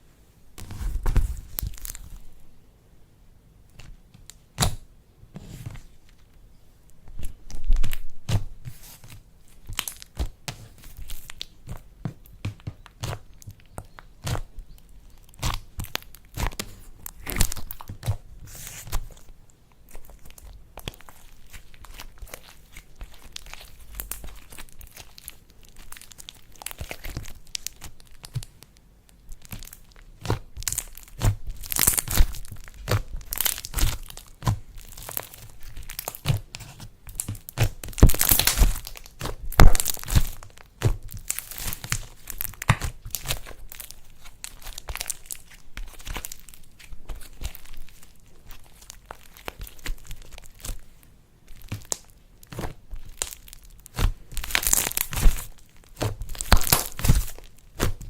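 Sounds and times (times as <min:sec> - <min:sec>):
slime crackling and popping: 0:07.2 - 0:58.0.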